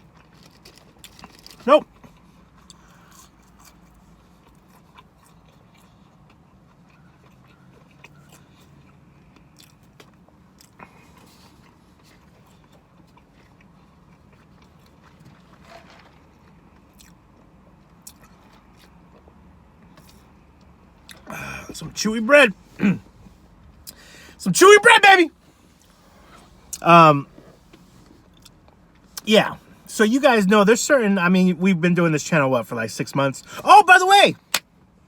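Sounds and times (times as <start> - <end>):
person chewing food: 0.0 - 15.6.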